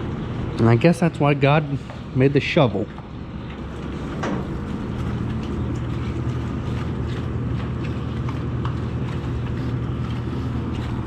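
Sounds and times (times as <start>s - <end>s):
skid steer engine running: 0.0s - 11.0s.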